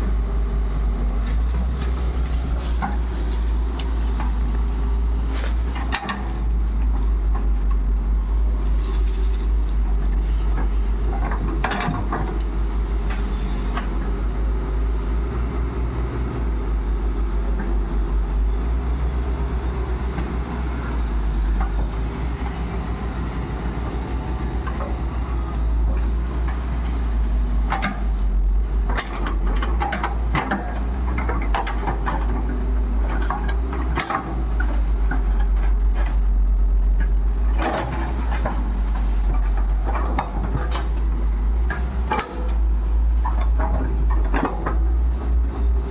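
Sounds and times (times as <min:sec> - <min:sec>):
diesel engine running: 0:00.0 - 0:45.9
knocks and rattles: 0:01.2 - 0:07.8, 0:10.5 - 0:14.4, 0:21.5 - 0:36.3, 0:37.0 - 0:45.9.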